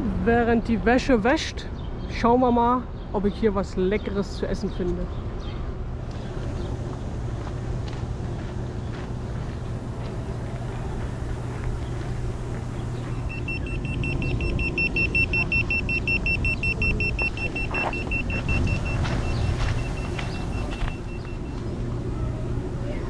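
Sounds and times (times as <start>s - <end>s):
car engine and road hum: 5.8s - 23.0s
high electronic beeps: 13.1s - 21.6s.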